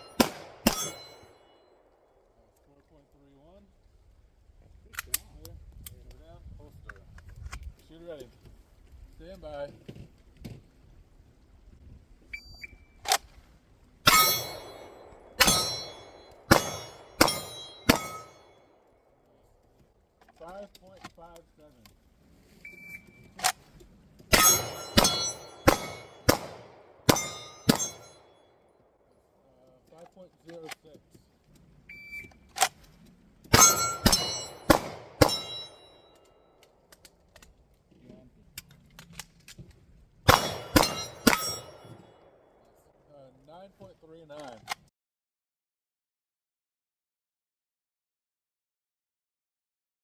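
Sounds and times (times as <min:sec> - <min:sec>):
steel targets ringing: 0:00.0 - 0:01.6, 0:14.1 - 0:18.7, 0:24.3 - 0:28.4, 0:33.5 - 0:36.2, 0:40.3 - 0:42.2
pistol shots: 0:00.0 - 0:02.0, 0:14.1 - 0:18.5, 0:24.3 - 0:28.3, 0:33.5 - 0:36.0, 0:40.3 - 0:42.4.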